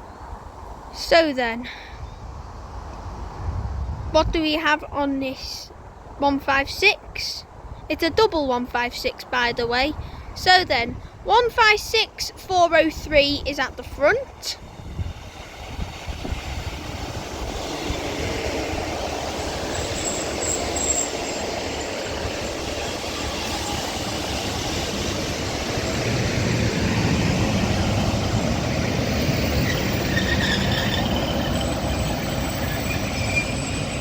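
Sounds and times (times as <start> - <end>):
wheels on rail: 12.5 - 34.0
faint brake squeals: 19.8 - 21.8, 29.6 - 34.0.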